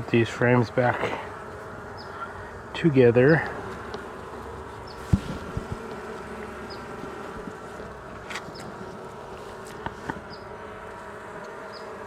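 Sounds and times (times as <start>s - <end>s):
bees buzzing in a hive: 0.0s - 12.0s
hive frames knocking: 4.9s - 7.6s.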